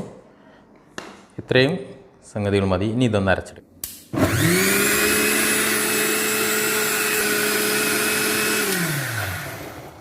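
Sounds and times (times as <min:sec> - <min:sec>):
mixer grinder motor whine: 0:04.1 - 0:10.0.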